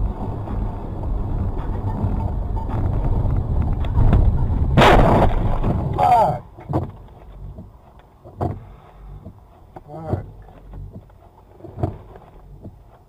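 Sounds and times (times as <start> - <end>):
vehicle rumble: 0.0 - 13.0
loud collision bang: 4.0 - 6.3.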